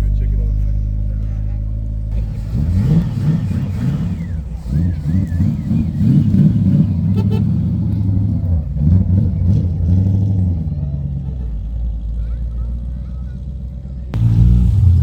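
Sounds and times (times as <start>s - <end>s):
car engine revving: 2.1s - 12.0s, 14.2s - 15.0s.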